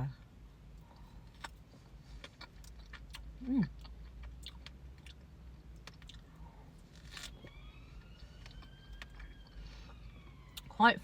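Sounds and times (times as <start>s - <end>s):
person chewing strawberry: 0.8s - 7.5s
distant siren: 7.1s - 11.0s.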